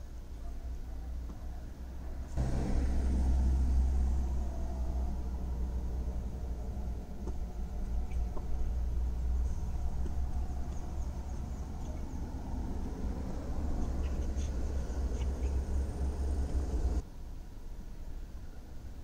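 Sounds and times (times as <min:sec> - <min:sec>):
car engine idling: 0:02.0 - 0:17.0
faint bird chirps: 0:09.2 - 0:16.8.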